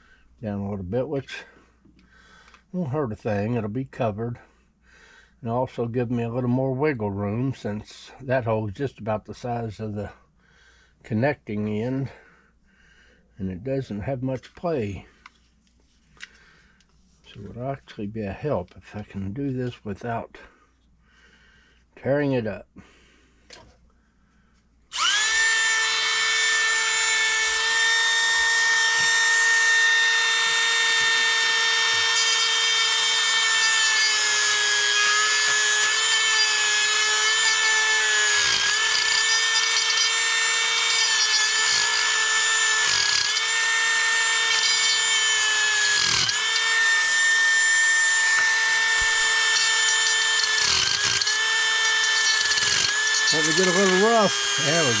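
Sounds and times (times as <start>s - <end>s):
power tool whining: 24.9s - 55.0s.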